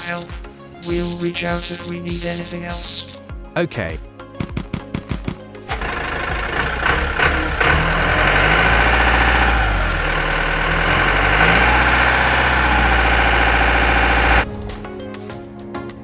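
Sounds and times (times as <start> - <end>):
diesel engine running: 5.7 - 14.8.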